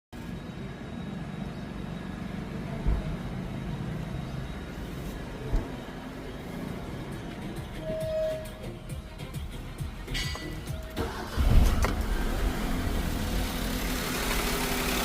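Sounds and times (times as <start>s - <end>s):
car engine low rumble: 0.2s - 8.0s, 8.8s - 15.0s
low engine thumps: 2.8s - 3.3s.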